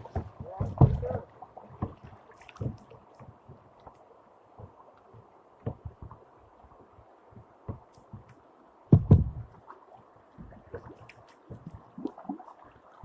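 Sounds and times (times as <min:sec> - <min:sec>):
thuds and knocks on kayak: 0:00.0 - 0:02.8, 0:05.6 - 0:06.2, 0:07.3 - 0:08.3, 0:08.9 - 0:09.6.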